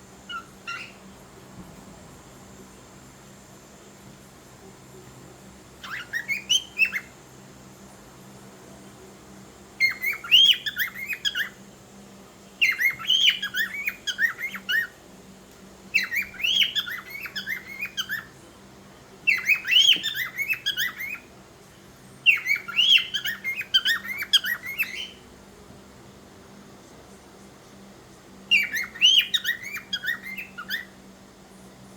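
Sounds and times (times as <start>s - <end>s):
cockatiel chirping and whistling: 0.3s - 1.0s, 5.8s - 7.1s, 9.8s - 11.6s, 12.6s - 14.9s, 16.0s - 18.3s, 19.3s - 21.3s, 22.3s - 25.2s, 28.5s - 30.9s.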